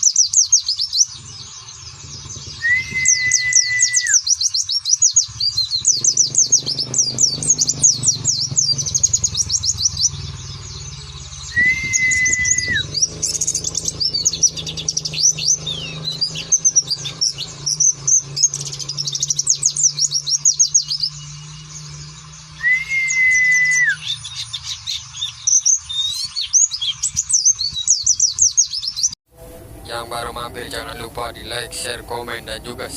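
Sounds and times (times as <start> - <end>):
white-eye twittering: 0.0 - 32.9
flat whistled bird note: 2.5 - 4.2, 11.5 - 12.9, 22.6 - 24.0.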